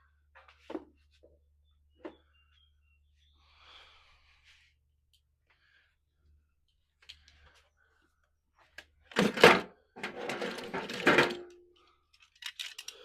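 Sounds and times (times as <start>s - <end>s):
hard objects knocking and clattering: 9.2s - 11.6s.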